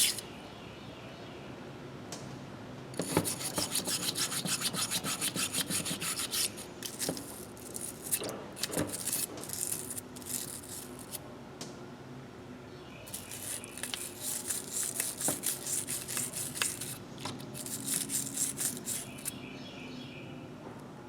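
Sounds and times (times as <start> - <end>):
scraping on steel pliers: 0.0 - 0.2, 3.0 - 11.2, 13.1 - 19.3.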